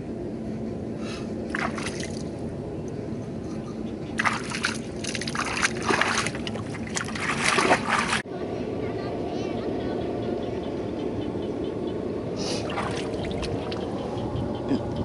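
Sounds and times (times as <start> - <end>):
mud and water splashing: 1.5 - 2.4, 4.2 - 8.2, 12.5 - 13.9.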